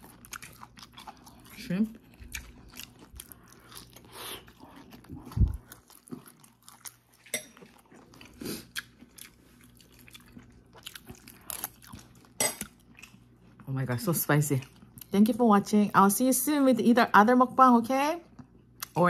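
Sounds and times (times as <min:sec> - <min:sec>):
person chewing: 0:00.0 - 0:13.7.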